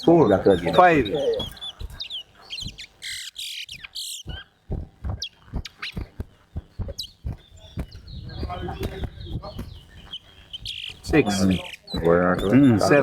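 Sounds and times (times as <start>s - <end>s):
finch singing: 0.0s - 13.0s
dull low thumps: 3.7s - 13.0s.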